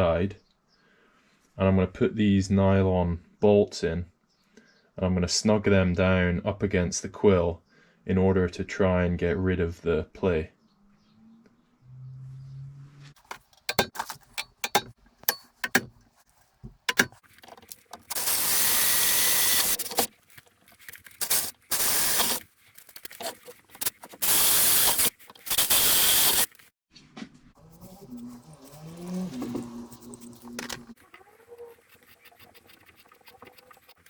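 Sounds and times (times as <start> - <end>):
small parts clicking and rattling: 13.2 - 26.7, 28.3 - 34.0.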